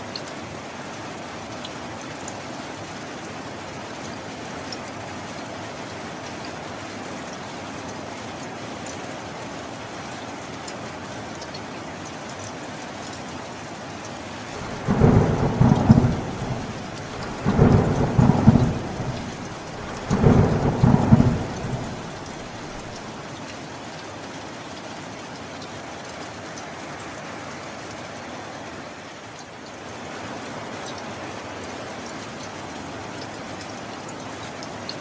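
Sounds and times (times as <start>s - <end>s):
steady rain: 0.0s - 35.0s
thunder rolling: 14.5s - 23.0s.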